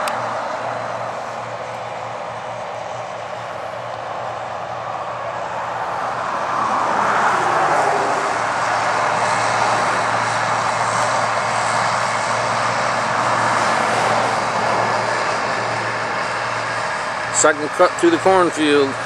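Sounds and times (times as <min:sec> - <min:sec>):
combine harvester engine drone: 0:00.0 - 0:19.0.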